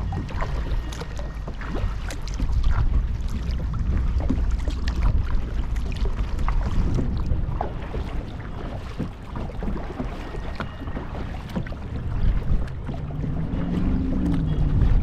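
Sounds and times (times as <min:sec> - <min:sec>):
low steady hum: 0:00.0 - 0:07.6
paddle splashes and drips: 0:00.0 - 0:15.0
wind rumble on microphone: 0:00.0 - 0:15.0.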